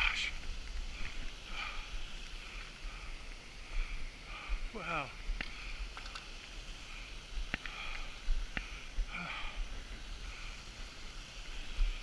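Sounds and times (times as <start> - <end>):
thin waterfall trickle: 0.0 - 12.0.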